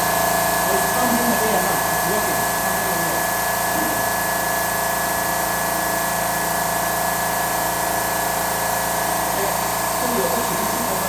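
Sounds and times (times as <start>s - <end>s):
electric air compressor hissing: 0.0s - 11.0s.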